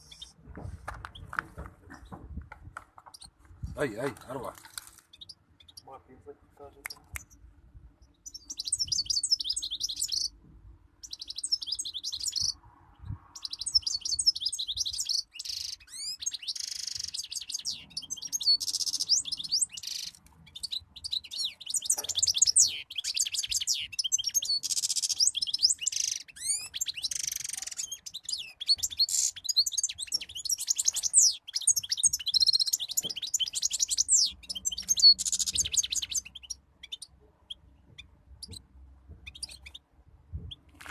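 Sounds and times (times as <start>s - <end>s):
goldfinch twittering and trilling: 8.2s - 10.3s, 11.0s - 12.6s, 13.4s - 38.6s, 39.2s - 39.8s.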